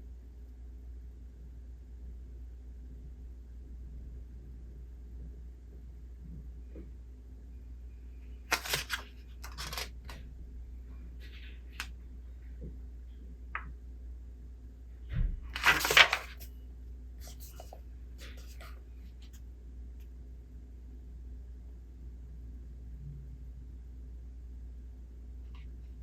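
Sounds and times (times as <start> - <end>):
low room hum: 0.0 - 26.0
book pages turning: 8.5 - 10.2, 15.5 - 16.5, 17.2 - 19.4.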